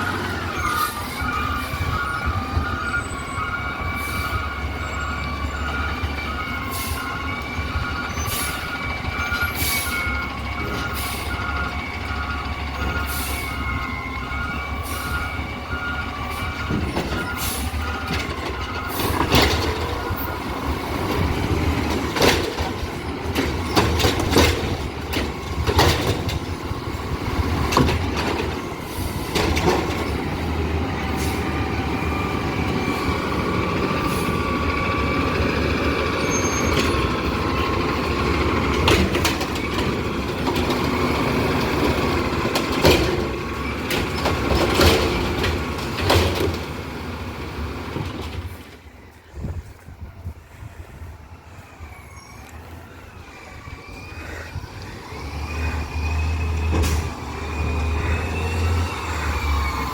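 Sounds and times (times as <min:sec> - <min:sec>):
reversing alarm beeping: 0:00.0 - 0:45.3, 0:51.4 - 0:59.9
diesel engine running: 0:00.0 - 0:59.9.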